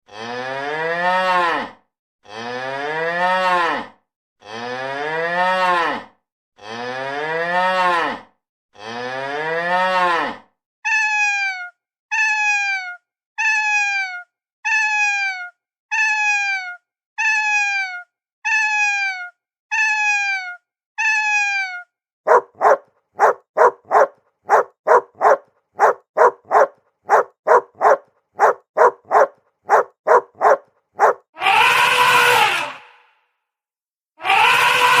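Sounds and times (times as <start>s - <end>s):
cow mooing: 0.1s - 1.7s, 22.3s - 32.8s
dog barking: 22.3s - 31.2s.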